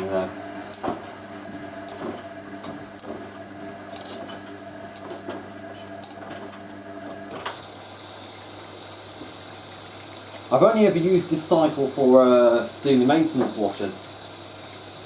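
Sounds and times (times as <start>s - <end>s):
washing machine humming: 0.0s - 15.0s
water intake hiss: 7.8s - 15.0s.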